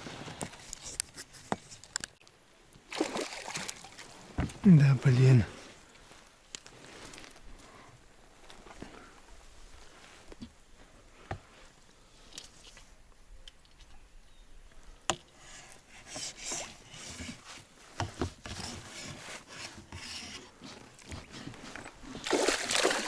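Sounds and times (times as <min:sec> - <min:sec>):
fishing gear rustling and scraping: 0:00.0 - 0:02.2, 0:04.0 - 0:13.0, 0:15.3 - 0:22.3.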